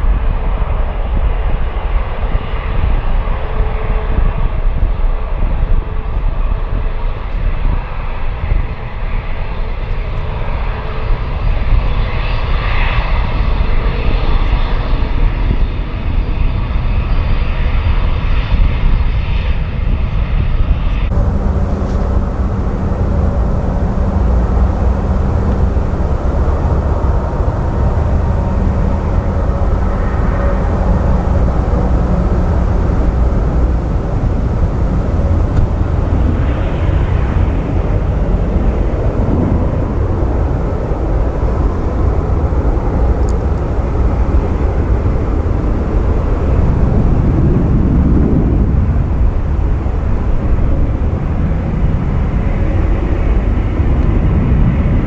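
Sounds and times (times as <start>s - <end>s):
steady low hum: 21.1s - 52.7s
jet engines roaring: 21.1s - 54.4s.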